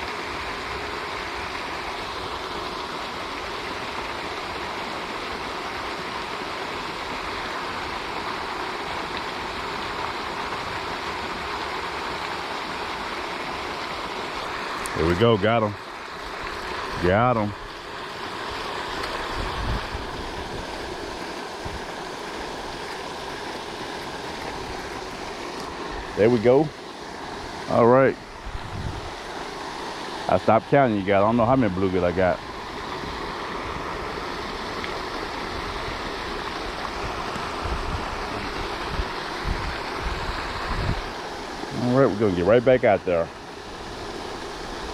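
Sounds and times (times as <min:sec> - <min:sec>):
fountain spray splashing: 0:00.0 - 0:44.9
wind buffeting microphone: 0:19.2 - 0:21.9, 0:28.3 - 0:29.3, 0:36.9 - 0:41.2.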